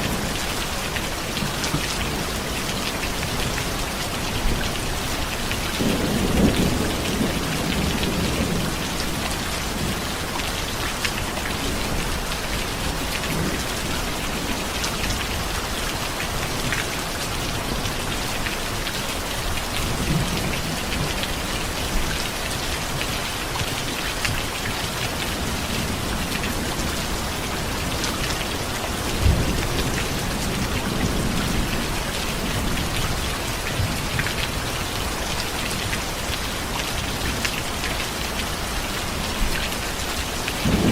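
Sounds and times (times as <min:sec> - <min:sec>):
dense rain falling: 0:00.0 - 0:40.9
thunder rumbling: 0:40.6 - 0:40.9.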